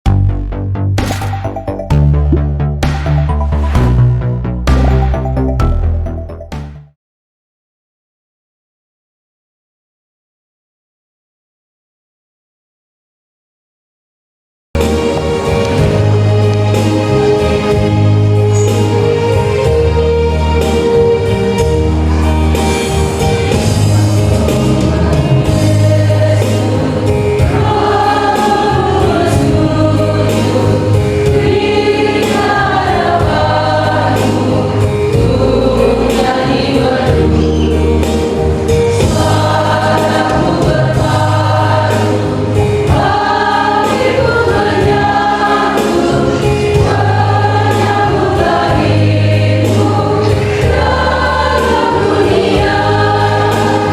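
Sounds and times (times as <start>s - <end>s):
instrumental bass accompaniment: 0.0s - 7.0s, 14.8s - 53.9s
choir singing a hymn: 14.8s - 53.9s.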